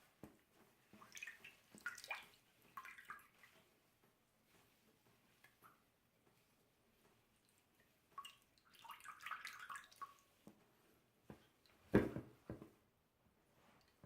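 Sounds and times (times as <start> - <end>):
water splashing and dripping: 0.9 - 3.7, 7.5 - 10.4.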